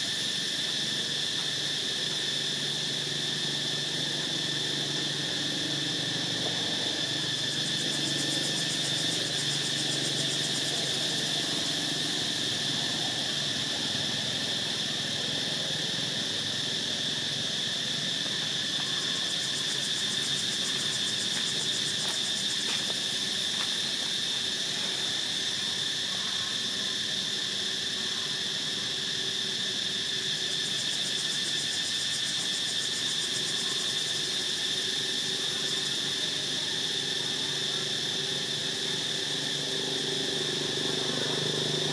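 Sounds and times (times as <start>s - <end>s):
insect chorus drone: 0.0s - 41.9s.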